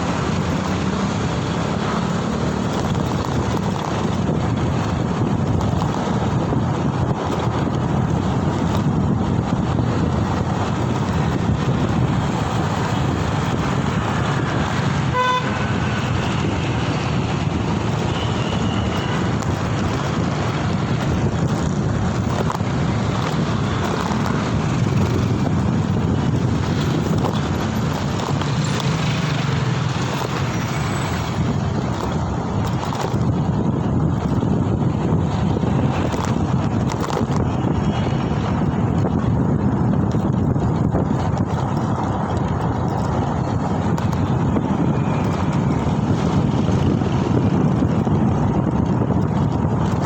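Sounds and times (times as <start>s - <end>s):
road traffic noise: 0.0s - 50.0s
wind buffeting microphone: 0.0s - 50.0s
vehicle horn toot: 15.0s - 15.8s.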